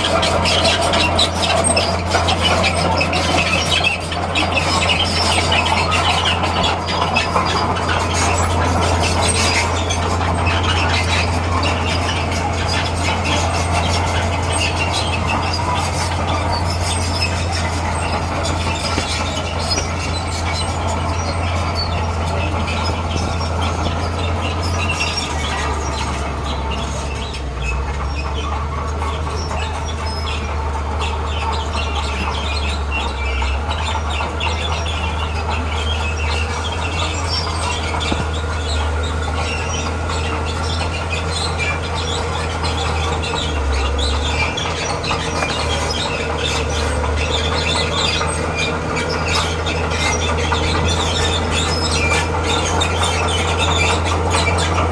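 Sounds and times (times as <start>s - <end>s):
bulldozer diesel engine: 0.0s - 54.9s
crawler tracks rattling and clanking: 0.0s - 54.9s.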